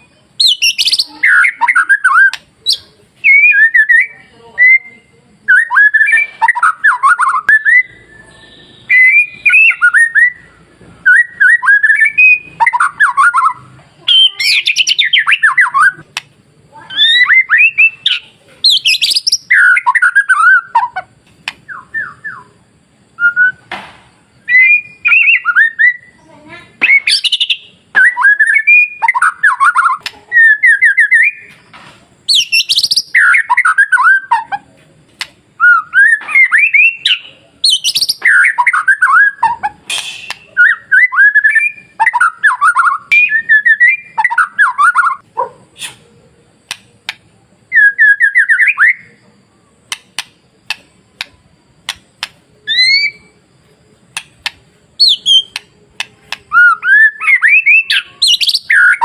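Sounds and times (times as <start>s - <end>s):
bird whistled song: 0.0s - 16.0s, 16.8s - 31.6s, 32.2s - 34.6s, 35.6s - 46.0s, 47.7s - 49.3s, 49.9s - 59.0s
bird sharp clicks: 16.1s - 16.4s, 21.2s - 21.8s, 35.1s - 35.4s, 39.5s - 40.5s, 46.6s - 47.3s, 49.9s - 53.2s, 54.1s - 56.6s.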